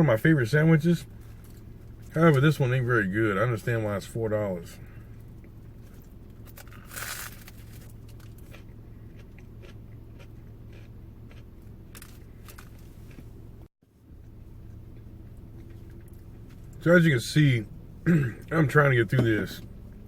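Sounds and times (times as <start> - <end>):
low steady hum: 0.0 - 20.0
person chewing crunchy bread: 5.2 - 13.3, 14.2 - 16.8.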